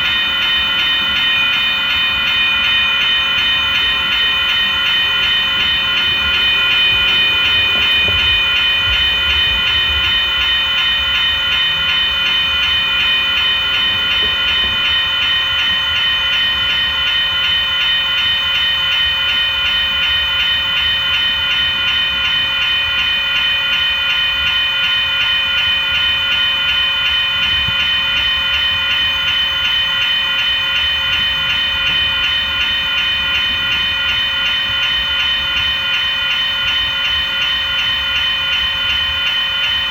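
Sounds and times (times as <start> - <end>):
train rumbling past: 0.0 - 23.8
high-pitched ringing tones: 0.0 - 39.9.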